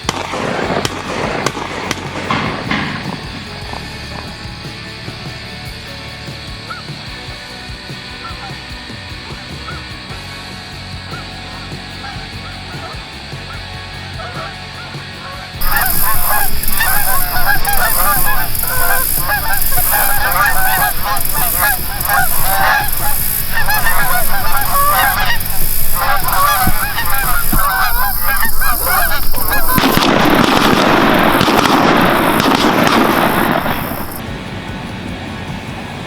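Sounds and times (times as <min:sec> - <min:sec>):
geese honking: 0:15.6 - 0:34.2.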